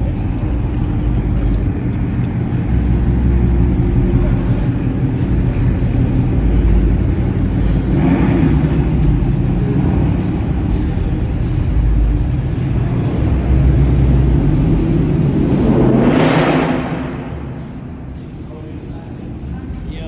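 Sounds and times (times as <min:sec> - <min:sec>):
car engine rumbling: 0:00.0 - 0:20.0.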